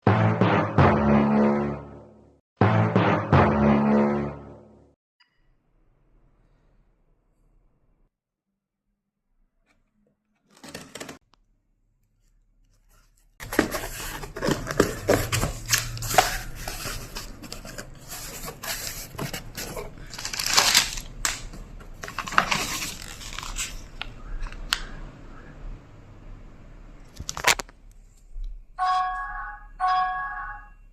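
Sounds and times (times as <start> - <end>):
packaging being cut: 13.4 - 23.9
parcel packaging tearing: 13.4 - 24.0.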